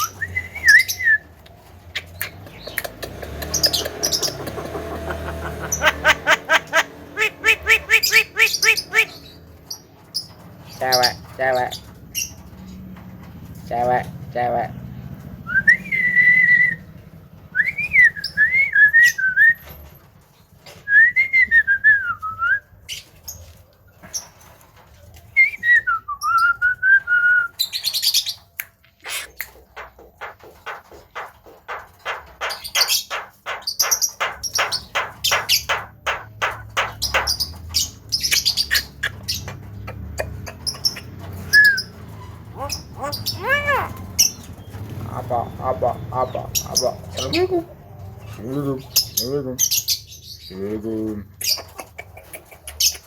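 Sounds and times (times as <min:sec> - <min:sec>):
myna whistling: 0:00.0 - 0:01.3, 0:41.0 - 0:42.0
high harsh bird calls: 0:00.0 - 0:12.5, 0:27.6 - 0:53.0
clicking chatter: 0:01.4 - 0:06.0, 0:51.6 - 0:53.0.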